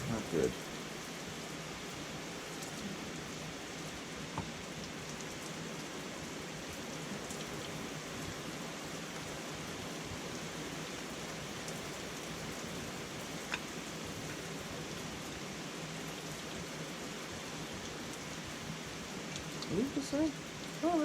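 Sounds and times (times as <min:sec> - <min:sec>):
steady even hiss: 0:00.0 - 0:03.8.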